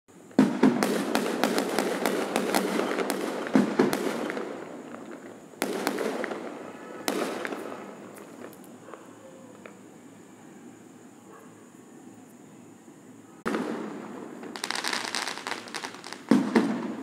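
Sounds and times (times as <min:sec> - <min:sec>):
fireworks crackling and popping: 0:00.1 - 0:08.8, 0:13.4 - 0:17.0
firework bangs: 0:00.3 - 0:08.6, 0:13.4 - 0:17.0.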